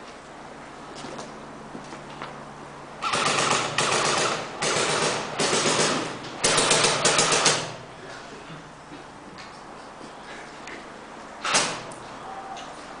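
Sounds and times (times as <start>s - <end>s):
airsoft guns firing bursts: 3.0s - 7.8s.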